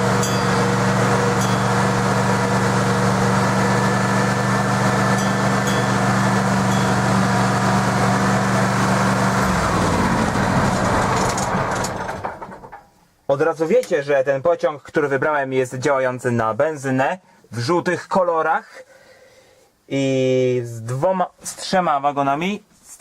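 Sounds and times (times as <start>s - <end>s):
gasoline engine running: 0.0s - 12.8s.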